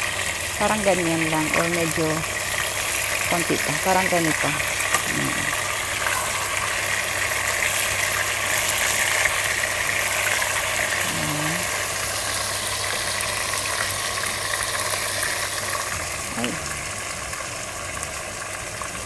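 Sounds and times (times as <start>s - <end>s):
low steady hum: 0.0s - 9.4s, 10.1s - 19.0s
chicken sizzling in hot oil: 0.0s - 19.0s.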